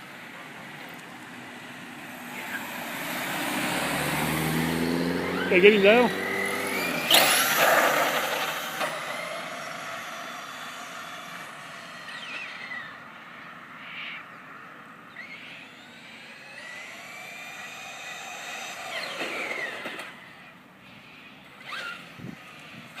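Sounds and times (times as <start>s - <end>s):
tyre and ground noise: 0.0s - 13.1s
electric motor whining: 0.1s - 13.8s, 15.0s - 23.0s.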